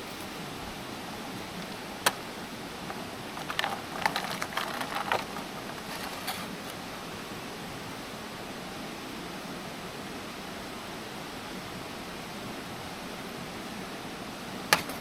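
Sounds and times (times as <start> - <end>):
steady hiss: 0.0 - 15.0
small hard objects clattering: 1.4 - 6.8.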